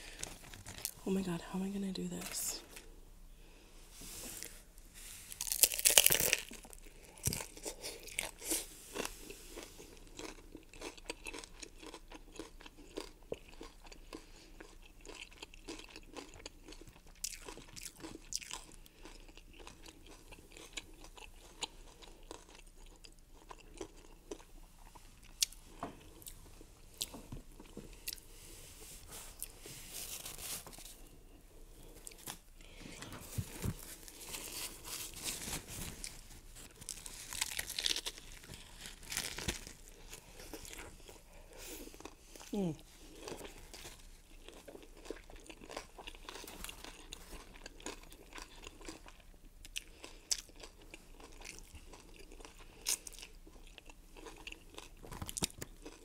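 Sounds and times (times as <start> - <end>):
close-up chewing with crunches: 0.0 - 1.0, 5.3 - 28.3, 31.8 - 56.0
crunchy taco bite: 5.4 - 26.3, 36.8 - 40.9, 42.0 - 56.0.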